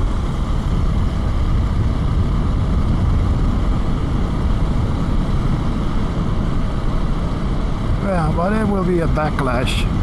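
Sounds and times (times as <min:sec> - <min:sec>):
motorcycle engine running: 0:00.0 - 0:10.0
road noise: 0:00.0 - 0:10.0
wind rush: 0:00.0 - 0:10.0.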